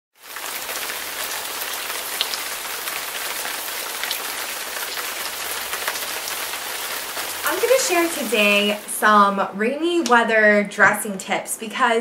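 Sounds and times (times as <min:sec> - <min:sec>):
heavy rainfall hiss: 0:00.2 - 0:09.4
rain drop ticks: 0:00.6 - 0:02.6, 0:09.9 - 0:10.2.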